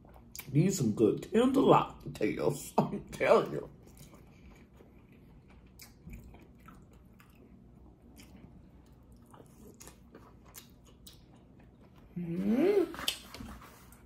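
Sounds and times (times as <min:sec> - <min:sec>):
wet chewing: 0:03.8 - 0:12.1.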